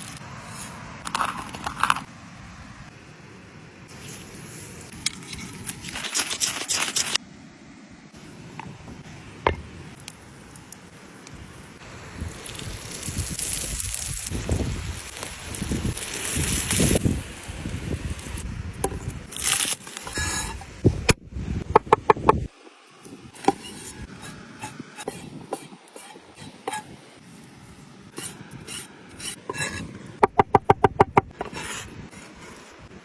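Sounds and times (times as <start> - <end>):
scraping and rubbing food: 3.9 - 7.2, 23.3 - 30.0, 31.3 - 32.9.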